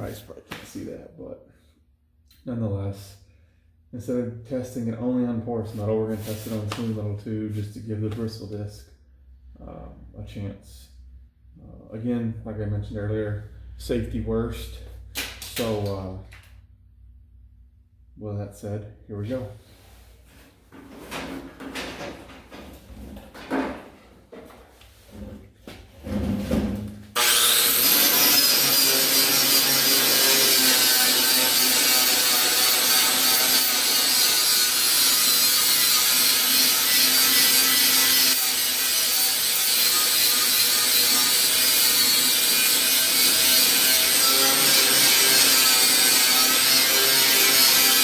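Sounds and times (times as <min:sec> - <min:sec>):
bristle disc scrubbing metal: 0:27.2 - 0:48.0
power tool whining: 0:27.2 - 0:48.0.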